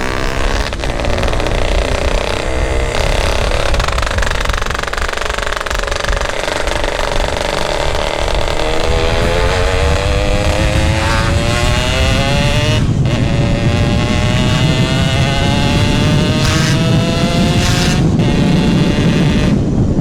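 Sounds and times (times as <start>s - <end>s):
motorcycle accelerating: 0.0s - 20.0s.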